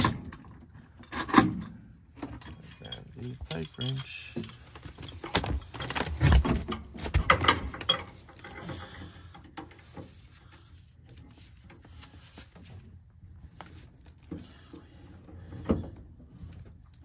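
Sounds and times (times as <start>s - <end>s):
metal hand tools clanking: 2.4s - 5.3s.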